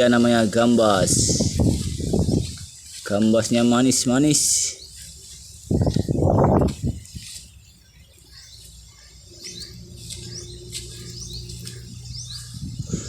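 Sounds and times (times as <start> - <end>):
wind buffeting microphone: 0.0 - 2.9, 5.6 - 7.5, 9.6 - 13.0
small birds chirping: 0.0 - 13.0.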